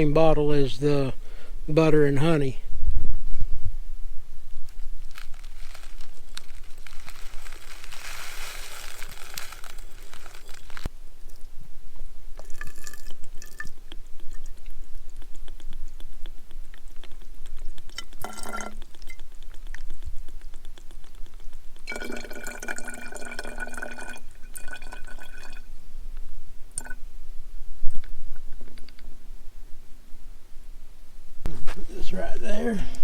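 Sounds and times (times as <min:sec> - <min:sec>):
liquid pouring into glass bottle: 0:12.4 - 0:14.5, 0:17.9 - 0:18.8, 0:21.9 - 0:25.7.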